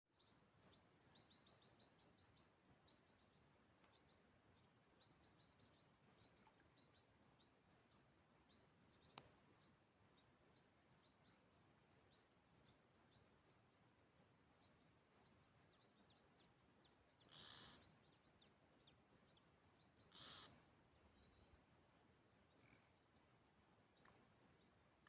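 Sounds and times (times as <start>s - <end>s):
small birds chirping: 0.1s - 25.0s.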